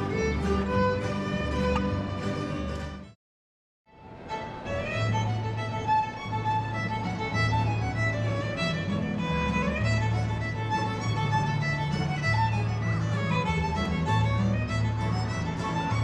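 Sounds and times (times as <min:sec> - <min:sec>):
fiddle playing lively tune: 0:00.0 - 0:03.1, 0:04.1 - 0:16.0
held low bass notes: 0:00.0 - 0:03.1.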